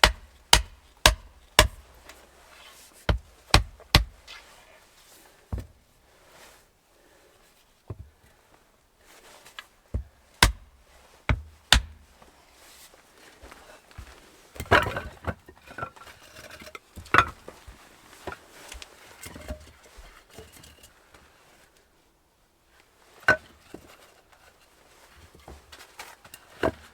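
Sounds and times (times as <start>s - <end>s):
sharp knocks: 0.0s - 1.8s.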